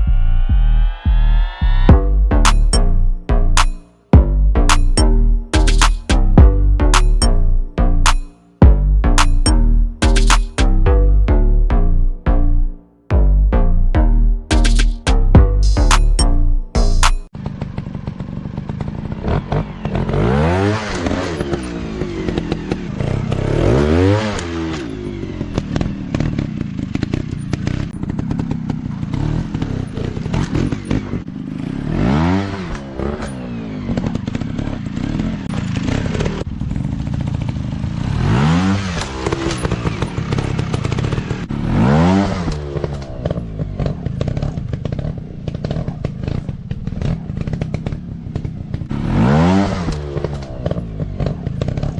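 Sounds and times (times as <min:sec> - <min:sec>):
dirt bike engine revving: 0:14.4 - 0:51.9.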